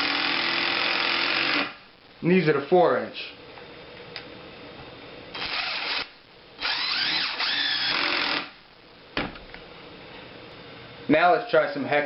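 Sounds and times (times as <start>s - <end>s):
impact driver driving a screw: 5.4s - 8.5s
short thump: 9.2s - 9.4s.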